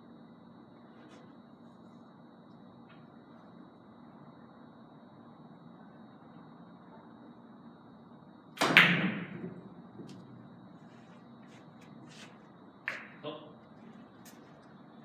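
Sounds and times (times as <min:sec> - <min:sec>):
cue striking billiard ball: 0:08.6 - 0:10.4, 0:12.9 - 0:13.2
billiard balls clicking: 0:12.9 - 0:13.2.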